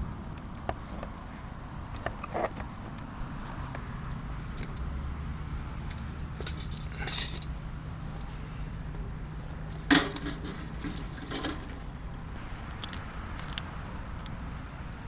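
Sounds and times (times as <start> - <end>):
tableware scraping: 9.8 - 11.9.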